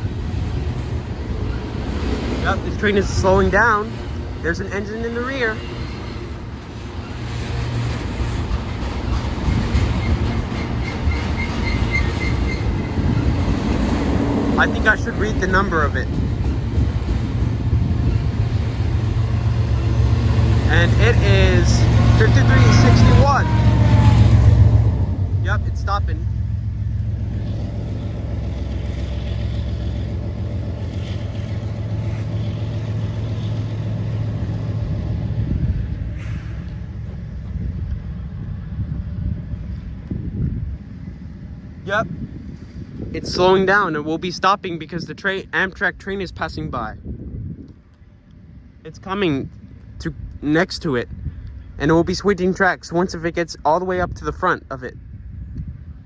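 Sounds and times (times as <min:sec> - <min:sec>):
wheels squealing: 0:00.0 - 0:35.0
wheels clacking over rail joints: 0:00.0 - 0:38.0
freight train cars rumbling: 0:00.0 - 0:56.0.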